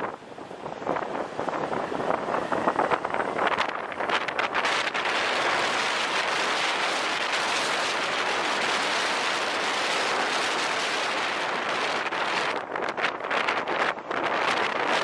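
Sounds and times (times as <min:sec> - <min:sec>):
wind rushing on microphone: 0:00.0 - 0:15.0.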